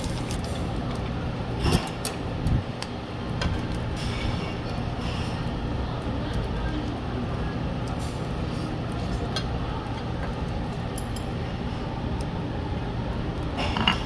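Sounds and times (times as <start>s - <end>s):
tableware clinking: 13.6s - 14.0s.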